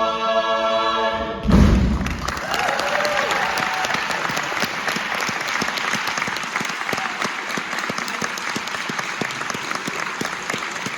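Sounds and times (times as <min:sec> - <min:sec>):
audience applauding: 0:01.9 - 0:10.9.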